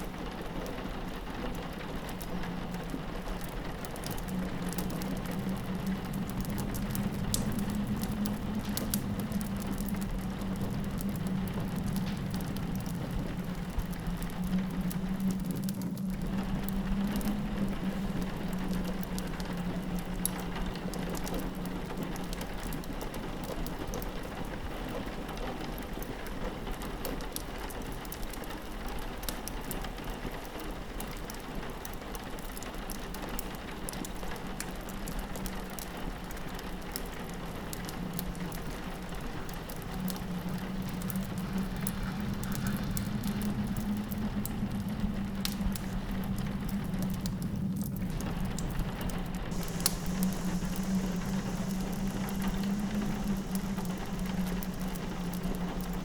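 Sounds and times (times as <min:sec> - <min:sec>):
rain pattering on window: 0:00.0 - 0:56.0
fireplace crackling: 0:02.0 - 0:24.4, 0:30.5 - 0:56.0
low steady drone: 0:37.5 - 0:56.0.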